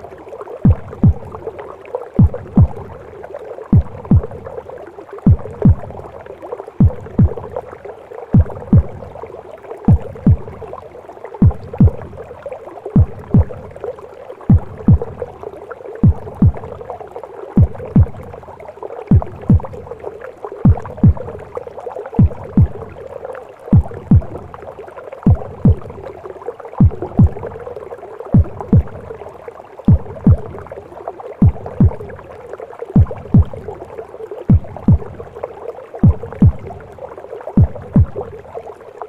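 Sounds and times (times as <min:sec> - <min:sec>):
heartbeat thumps: 0:00.6 - 0:01.6, 0:02.2 - 0:03.1, 0:03.7 - 0:06.2, 0:06.8 - 0:07.7, 0:08.3 - 0:09.3, 0:09.9 - 0:10.8, 0:11.4 - 0:12.4, 0:13.0 - 0:17.0, 0:17.6 - 0:18.5, 0:19.1 - 0:23.1, 0:23.7 - 0:26.2, 0:26.8 - 0:30.8, 0:31.4 - 0:32.3, 0:33.0 - 0:35.4, 0:36.0 - 0:37.0, 0:37.6 - 0:38.5.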